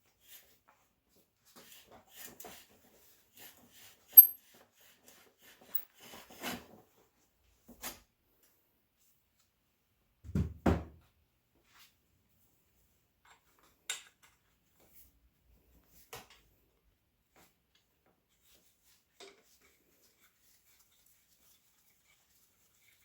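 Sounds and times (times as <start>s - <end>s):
tools clicking and tapping: 4.2s - 4.4s.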